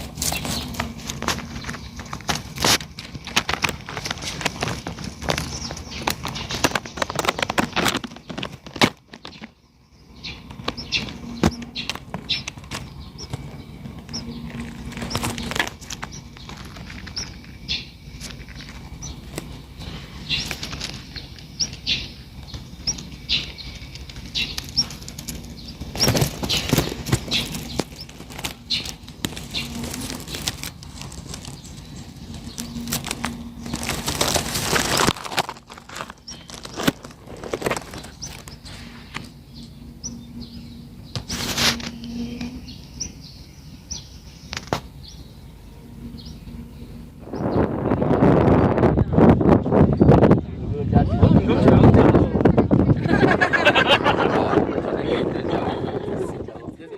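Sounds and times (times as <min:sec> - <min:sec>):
bird wings flapping: 0:00.0 - 0:09.5, 0:10.6 - 0:17.5, 0:23.9 - 0:39.3
chicks chirping: 0:00.0 - 0:56.9.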